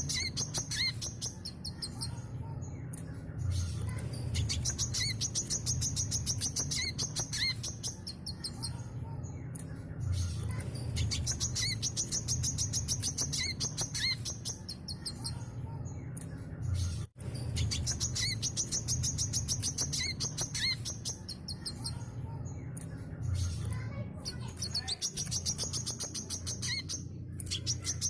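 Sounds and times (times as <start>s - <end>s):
sunbird chattering song: 0.0s - 2.2s, 4.3s - 8.8s, 11.0s - 15.4s, 17.4s - 22.0s, 24.3s - 28.0s.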